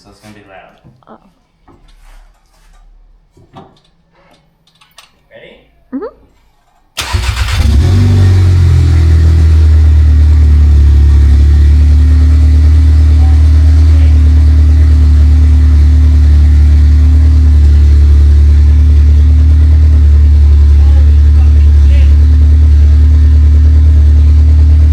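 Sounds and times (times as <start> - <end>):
car engine starting and idling: 7.0 - 24.9.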